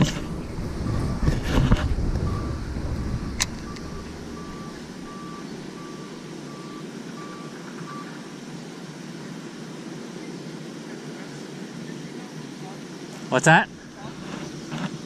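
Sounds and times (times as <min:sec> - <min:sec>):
low rumble: 0:00.0 - 0:06.0
electronic beeper beeping: 0:02.2 - 0:08.1.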